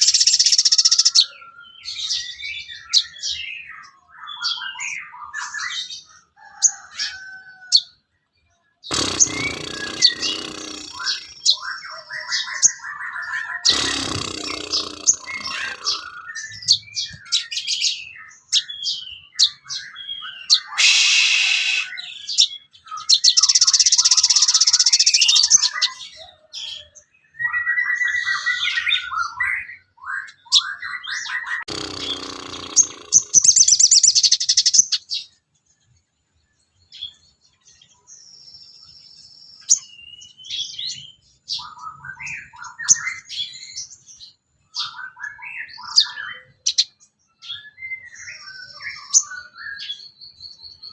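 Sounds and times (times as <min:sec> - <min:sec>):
harsh buzzing bird calls: 0:00.0 - 0:05.0, 0:08.8 - 0:26.0, 0:30.5 - 0:35.2
bird singing chirps and trills: 0:00.0 - 0:50.9.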